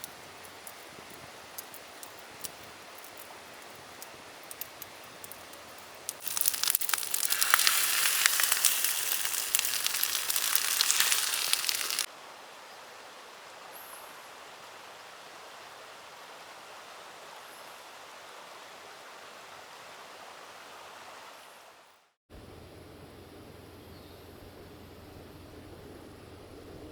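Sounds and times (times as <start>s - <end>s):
campfire crackling and popping: 0.0s - 12.1s
rice sizzling in hot pan: 5.2s - 12.1s.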